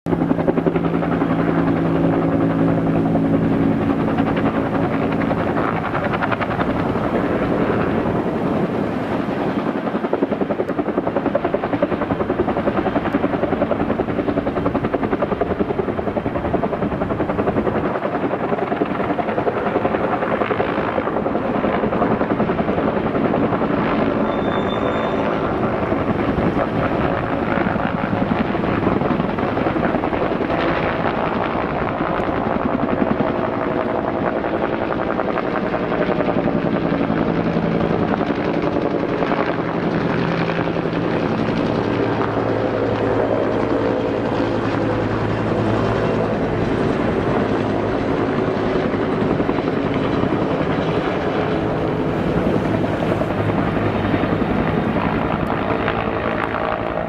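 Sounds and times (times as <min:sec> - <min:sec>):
helicopter rotor beating: 0:00.1 - 0:57.0.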